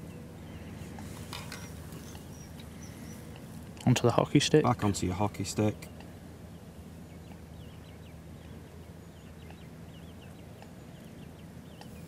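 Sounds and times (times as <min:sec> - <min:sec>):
faint high bird calls: 0:00.0 - 0:03.6
low outdoor rumble: 0:00.0 - 0:12.0.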